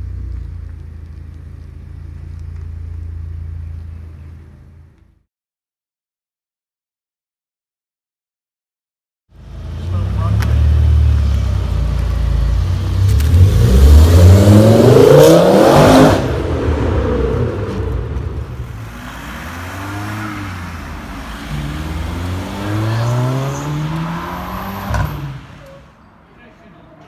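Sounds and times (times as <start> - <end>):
car engine accelerating hard: 9.4 - 25.7.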